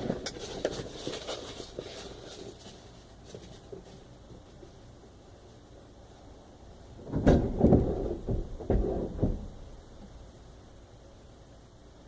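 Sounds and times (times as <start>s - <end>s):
hands rustling handling parts: 0.0s - 5.6s.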